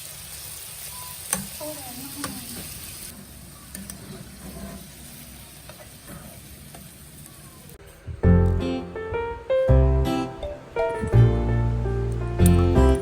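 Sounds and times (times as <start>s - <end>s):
food sizzling in a frying pan: 0.0s - 7.8s
loud music: 8.2s - 13.0s.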